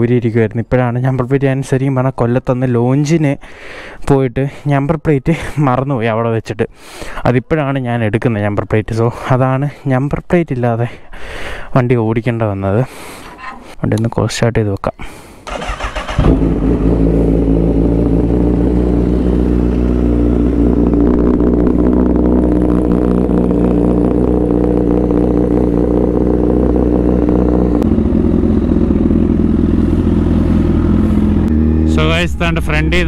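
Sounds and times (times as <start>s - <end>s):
motorcycle engine idling: 15.5s - 33.0s.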